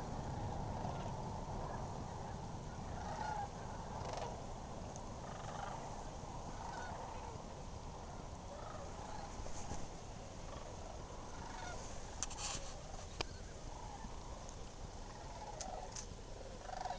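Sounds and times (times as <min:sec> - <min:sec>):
distant flock of birds calling: 0:00.0 - 0:16.9
low steady rumble: 0:00.0 - 0:16.9.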